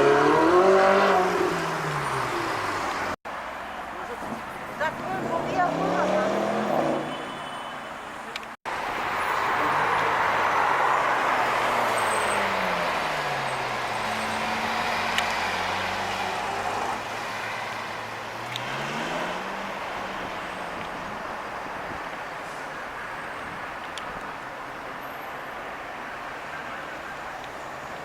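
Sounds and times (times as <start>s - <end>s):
car engine: 0.0s - 7.2s, 8.3s - 23.0s
road noise: 0.0s - 28.0s.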